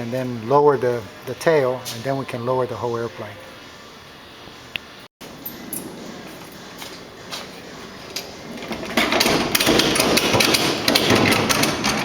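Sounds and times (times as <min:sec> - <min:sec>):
rapid metallic clicks and knocks: 0:08.2 - 0:12.0.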